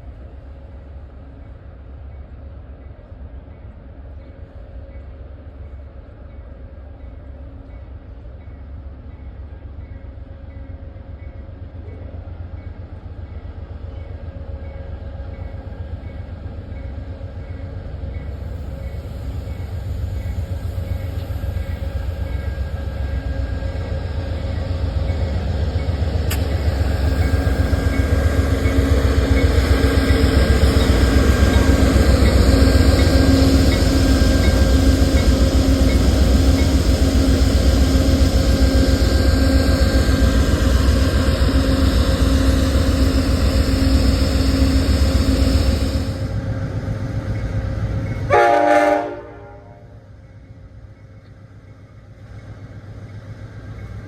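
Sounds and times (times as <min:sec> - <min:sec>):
train rumbling past: 0:00.0 - 0:54.0
train horn blast: 0:48.3 - 0:50.0.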